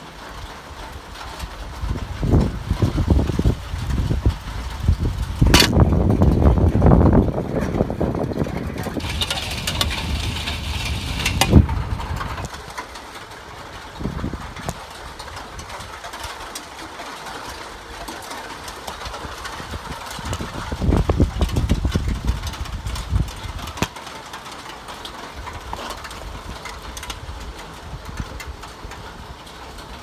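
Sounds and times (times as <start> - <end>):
low engine-like rumble: 8.5 - 12.5.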